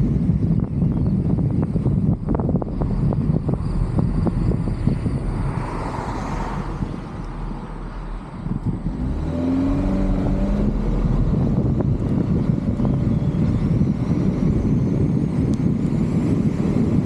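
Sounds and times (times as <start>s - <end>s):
low engine hum: 0.0s - 17.0s
road noise: 0.0s - 17.0s
wind buffeting microphone: 0.0s - 17.0s
vehicle passing: 3.8s - 14.1s.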